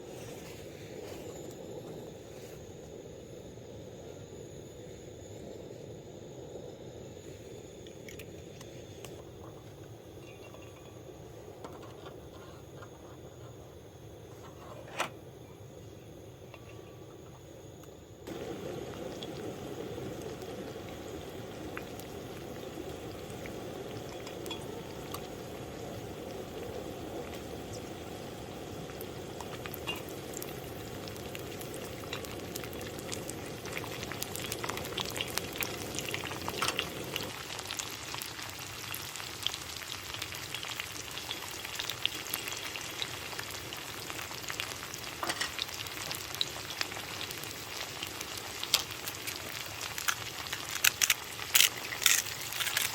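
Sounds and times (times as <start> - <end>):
food sizzling in a pan: 18.3 - 52.9.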